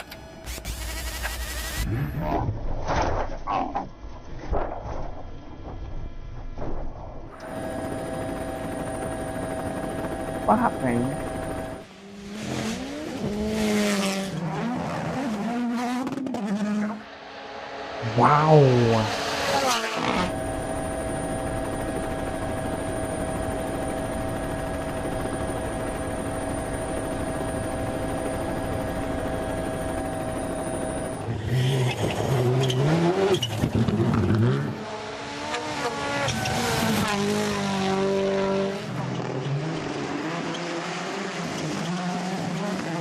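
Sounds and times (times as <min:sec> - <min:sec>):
engine drone: 0:00.0 - 0:43.0
car engine revving high: 0:16.7 - 0:20.4
faint high whine: 0:20.2 - 0:31.3.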